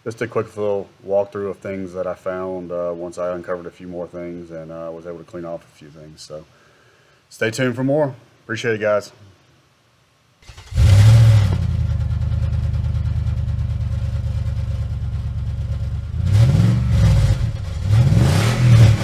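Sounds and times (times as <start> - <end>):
car engine starting and revving: 10.4 - 19.0.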